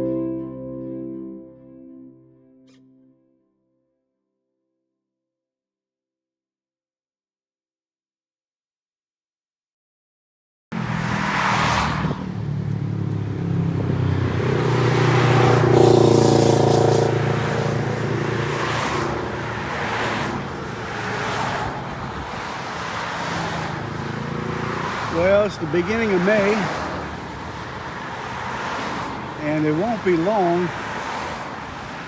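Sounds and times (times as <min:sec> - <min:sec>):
road and wind noise: 0:10.7 - 0:32.0
vehicle driving by: 0:10.8 - 0:32.0.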